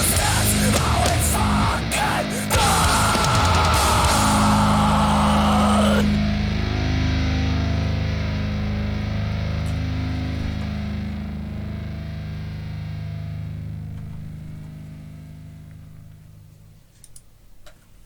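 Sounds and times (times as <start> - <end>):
hardcore punk band playing: 0.0 - 9.0
distorted guitar chord ringing: 0.0 - 16.9.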